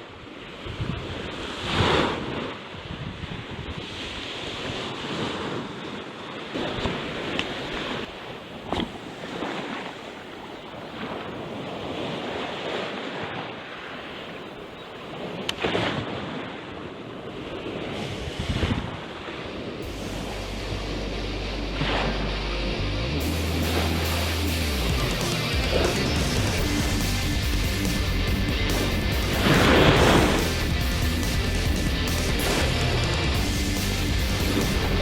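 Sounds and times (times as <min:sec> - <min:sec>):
sea waves washing on shore: 0:00.0 - 0:21.1, 0:28.6 - 0:35.0
wind buffeting microphone: 0:15.2 - 0:20.1.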